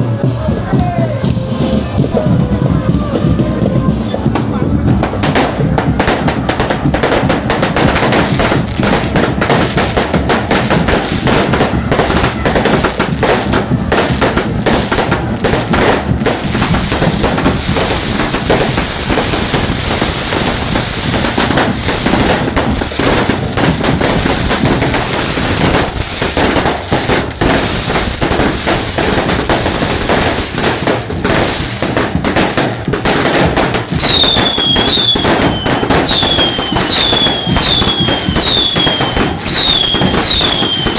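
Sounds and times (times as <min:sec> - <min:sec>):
fireworks bangs and crackling: 0:00.0 - 0:40.9
falling firework whistles: 0:33.9 - 0:40.9.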